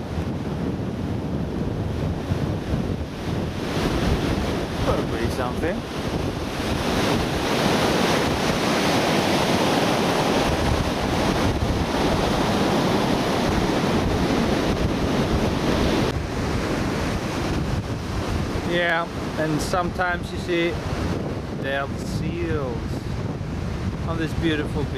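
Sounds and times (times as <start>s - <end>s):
surf breaking on beach: 0.0s - 24.9s
wind buffeting microphone: 0.0s - 24.9s.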